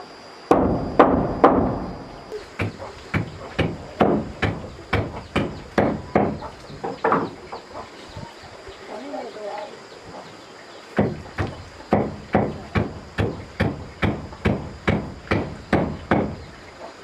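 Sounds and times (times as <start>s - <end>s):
hand tool striking wood: 2.6s - 7.3s, 11.0s - 16.4s.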